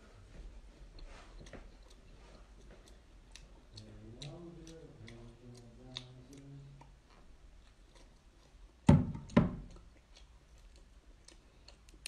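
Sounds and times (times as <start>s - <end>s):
muffled hum through full mouth: 0.0s - 12.0s
person chewing crab: 1.0s - 12.0s.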